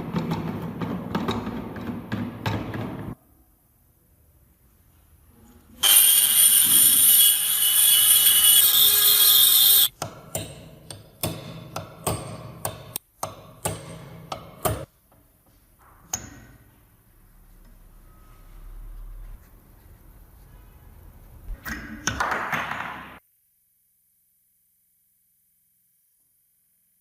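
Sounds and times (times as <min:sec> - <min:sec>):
power tool whining: 0:05.8 - 0:09.9.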